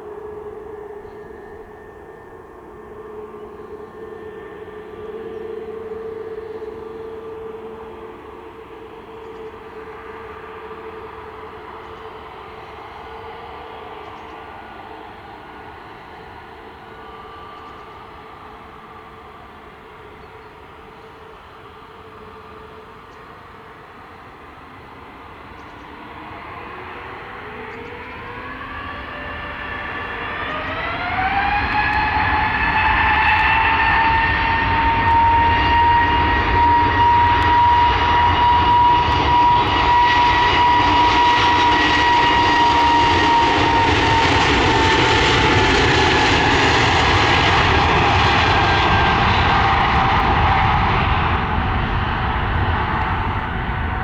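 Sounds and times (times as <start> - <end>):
jet engines spooling up: 0.0 - 54.0.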